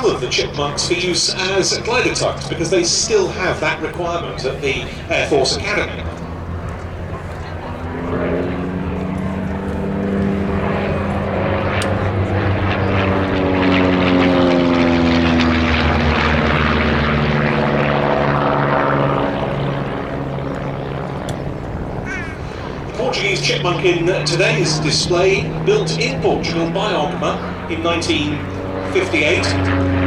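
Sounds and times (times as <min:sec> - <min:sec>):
propeller plane engine flypast: 0:00.0 - 0:30.0.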